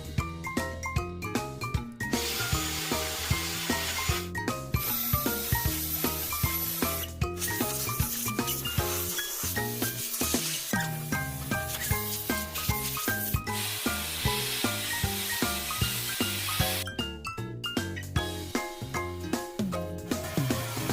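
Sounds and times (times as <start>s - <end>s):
background music with a beat: 0.0s - 20.9s
vacuum cleaner running: 2.2s - 4.2s.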